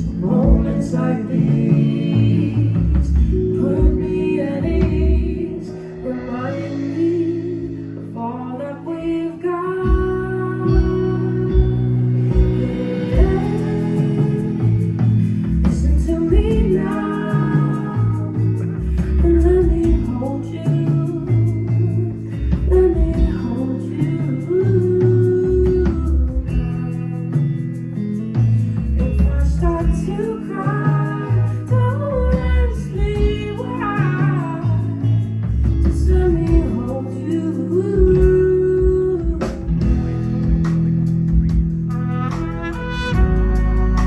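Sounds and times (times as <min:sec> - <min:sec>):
bass: 0:00.0 - 0:44.0
guitar: 0:00.0 - 0:44.0
live band playing slow song: 0:00.0 - 0:44.0
drum beat: 0:11.6 - 0:17.0, 0:39.2 - 0:44.0.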